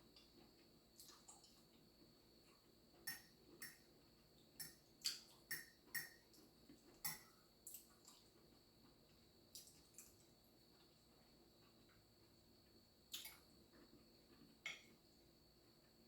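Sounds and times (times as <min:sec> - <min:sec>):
wet eating clicks and smacks: 0:01.0 - 0:01.8, 0:04.6 - 0:08.4, 0:09.5 - 0:10.3, 0:13.1 - 0:13.5.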